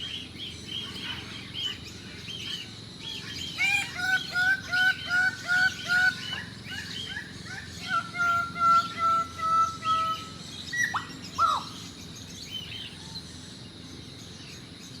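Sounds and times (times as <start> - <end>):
low background hum: 0.0 - 15.0
bird whistling calls: 2.4 - 11.9.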